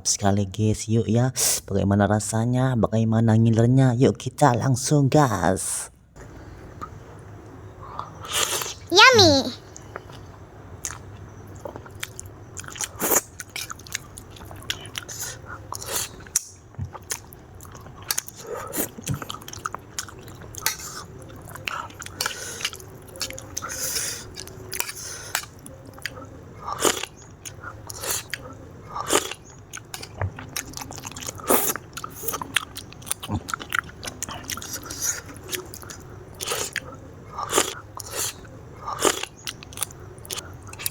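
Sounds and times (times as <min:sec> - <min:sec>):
person chewing noodles: 0:09.8 - 0:40.9.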